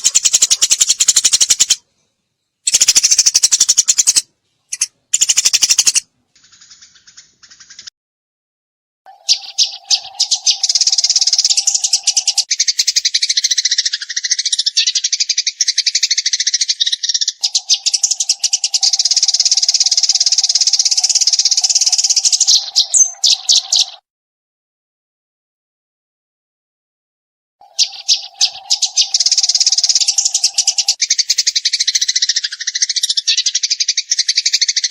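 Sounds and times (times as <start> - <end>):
sparrow rapid chirping: 0.0 - 1.8, 2.4 - 7.9, 9.1 - 24.0, 27.6 - 34.9.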